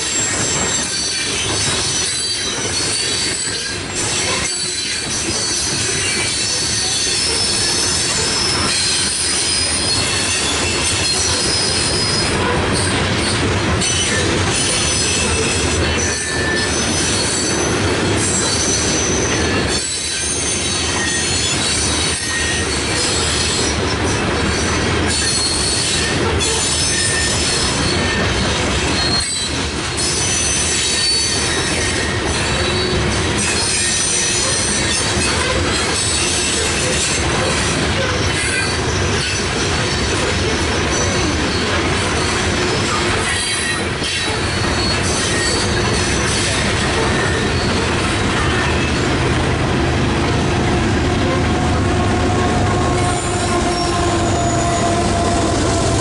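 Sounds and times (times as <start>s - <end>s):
high-pitched wheel squeals: 0.0s - 23.8s, 24.5s - 28.3s, 28.9s - 49.2s, 50.2s - 56.0s
train wheels rumbling on rails: 0.0s - 56.0s.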